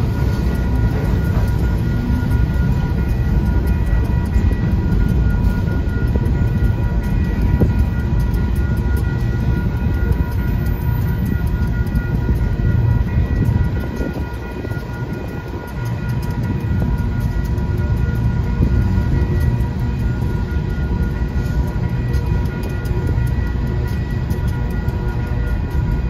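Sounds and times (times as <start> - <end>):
high ringing tone: 0.0 - 26.0
steel wheels rumbling on rail: 0.0 - 26.0.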